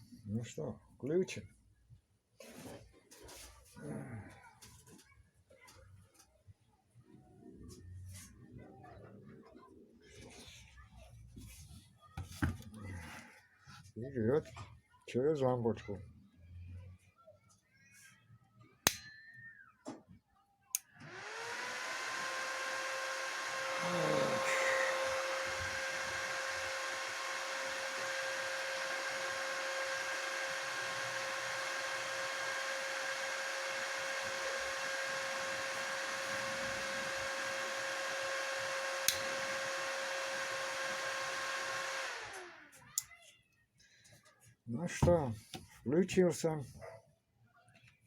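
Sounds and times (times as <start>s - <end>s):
cooling fan whirring: 21.0s - 42.7s
switch click: 39.1s - 39.3s.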